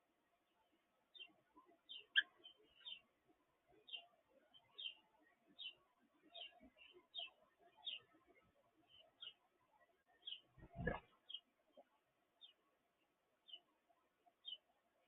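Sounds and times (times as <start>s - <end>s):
bird chirping: 1.1s - 3.1s, 3.7s - 9.5s, 10.1s - 12.6s, 13.4s - 13.7s, 14.3s - 14.7s.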